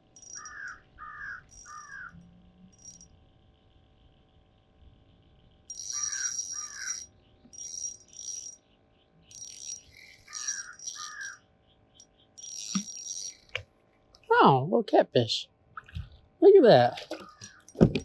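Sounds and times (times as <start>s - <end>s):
fishing reel whirring: 0.2s - 2.1s, 2.7s - 3.1s, 5.7s - 8.6s, 9.2s - 11.4s, 12.4s - 13.6s.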